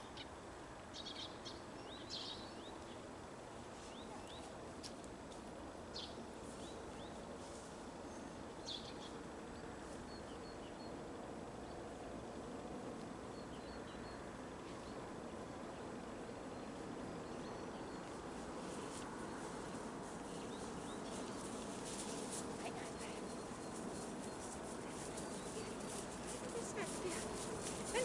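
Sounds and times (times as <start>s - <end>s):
steady outdoor background noise: 0.0s - 28.0s
small birds chirping: 13.3s - 28.0s.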